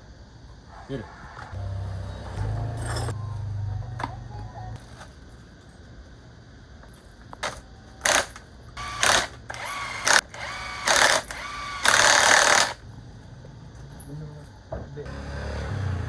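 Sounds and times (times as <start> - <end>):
power tool whining: 8.0 - 12.8, 15.1 - 16.0.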